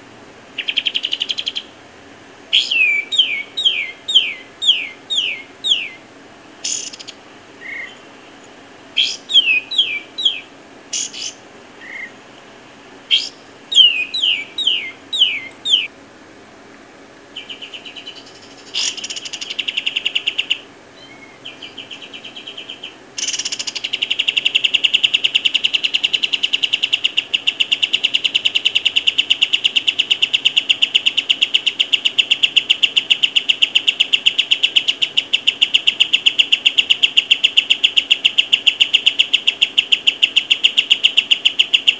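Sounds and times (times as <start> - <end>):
bird buzzy trill: 0.0 - 16.0, 17.2 - 41.9
bird chirps falling: 2.6 - 6.0, 6.6 - 8.1, 9.0 - 12.2, 13.1 - 15.9.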